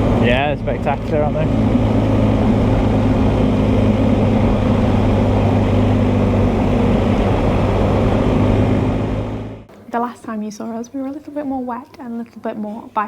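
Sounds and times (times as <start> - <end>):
wind noise: 0.0 - 9.5
motorcycle engine droning: 0.0 - 9.7
road noise: 0.0 - 9.7.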